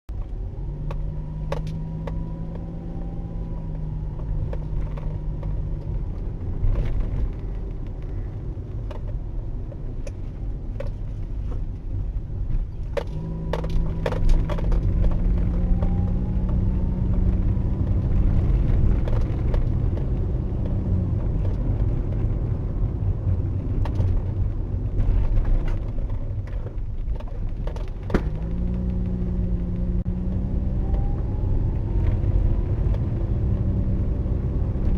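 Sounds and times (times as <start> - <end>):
car engine hum: 0.1 - 34.9
road and tyre noise: 0.1 - 34.9.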